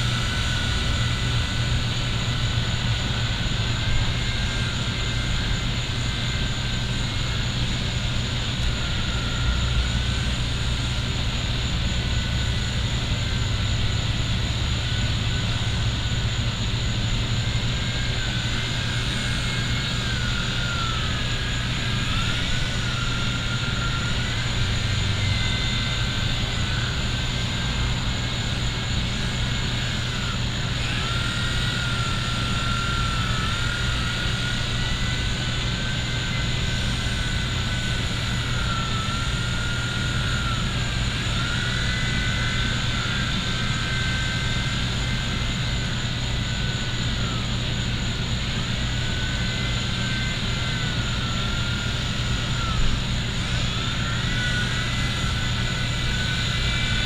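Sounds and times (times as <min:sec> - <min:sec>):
toy helicopter rotor motors whining: 0:00.0 - 0:57.0.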